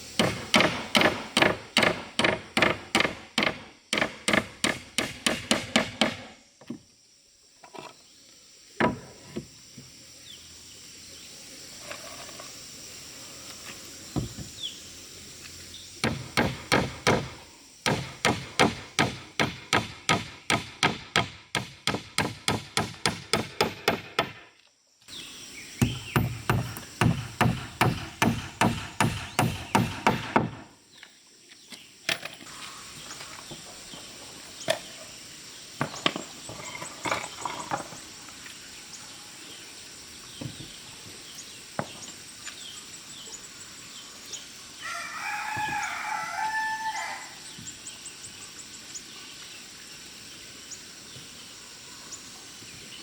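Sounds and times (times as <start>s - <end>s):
hammer striking wood: 0.2s - 6.3s, 16.0s - 24.4s, 25.8s - 30.7s.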